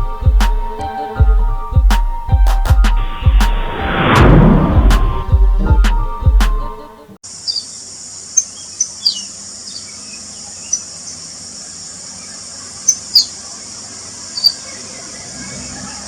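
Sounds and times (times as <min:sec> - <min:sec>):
music: 0:00.0 - 0:07.2
insect drone: 0:07.2 - 0:16.0
sharp bird chirps: 0:07.3 - 0:16.0.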